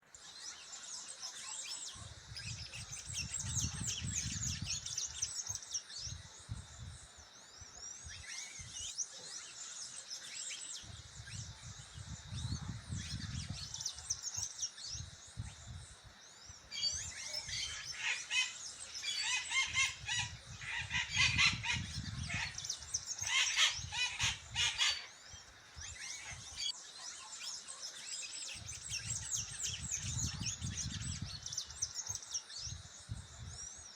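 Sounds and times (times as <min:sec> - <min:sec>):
birds chirping and singing: 0:00.0 - 0:33.9.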